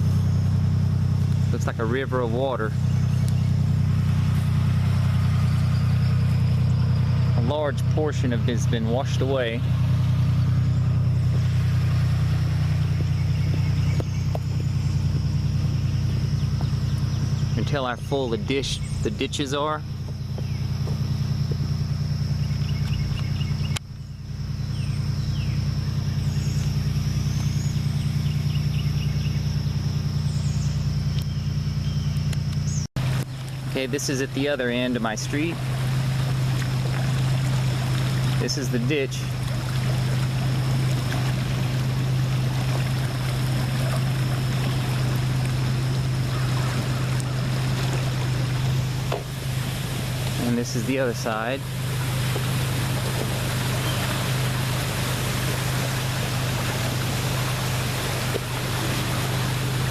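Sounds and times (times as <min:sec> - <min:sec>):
water rushing through ditch: 0:00.0 - 0:31.8, 0:33.0 - 0:59.9
car engine humming: 0:00.0 - 0:59.9
high insect drone: 0:00.0 - 0:59.9
faint bird chirps: 0:01.5 - 0:35.4, 0:53.6 - 0:54.5.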